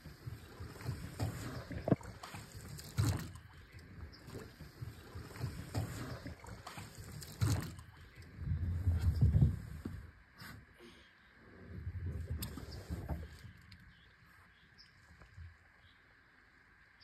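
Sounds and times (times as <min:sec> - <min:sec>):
low rumbling: 0:00.0 - 0:10.2
water splashing around boat: 0:00.0 - 0:15.6.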